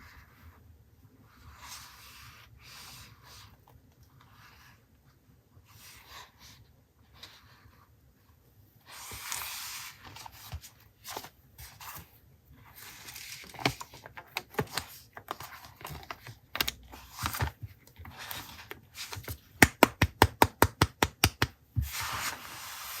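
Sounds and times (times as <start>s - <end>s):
paper rustling and sliding: 21.8s - 23.0s.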